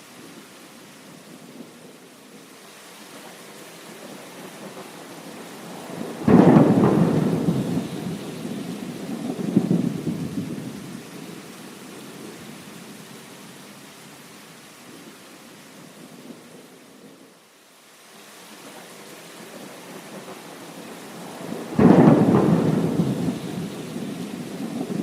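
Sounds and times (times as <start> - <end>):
heavy rain: 0.0 - 25.0
thunder rumbling: 4.4 - 12.4, 20.0 - 25.0.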